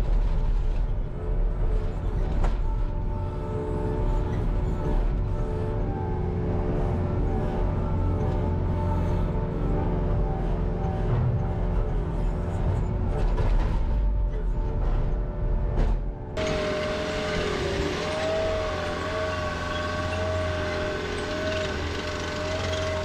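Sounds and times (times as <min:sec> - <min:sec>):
skid steer engine running: 0:16.0 - 0:23.0
hydraulic whine: 0:16.3 - 0:23.0.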